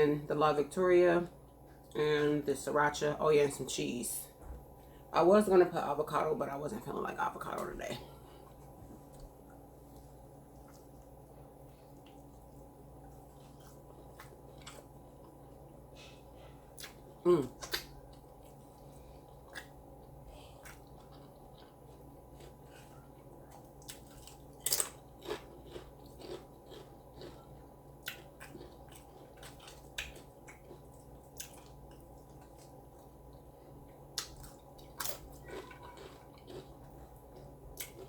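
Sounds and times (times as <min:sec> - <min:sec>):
person chewing crunchy taco: 0:08.2 - 0:38.0.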